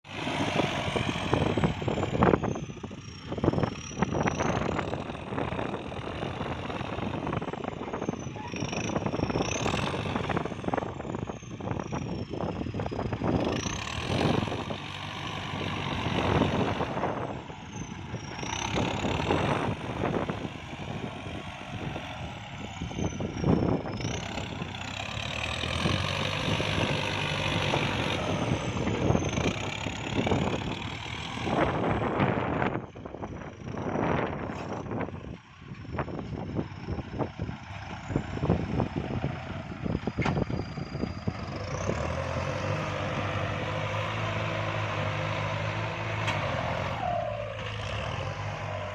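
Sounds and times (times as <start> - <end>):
tractor engine under load: 0.1 - 48.9.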